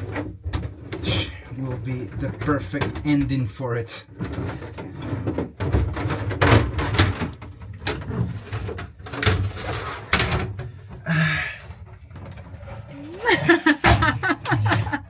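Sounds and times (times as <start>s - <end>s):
irregular knocks and thumps: 13.4s - 15.0s.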